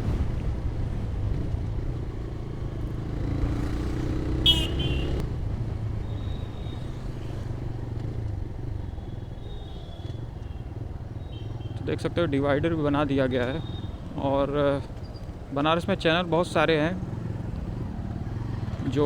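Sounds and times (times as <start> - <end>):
motorcycle engine running: 0.9 - 11.9.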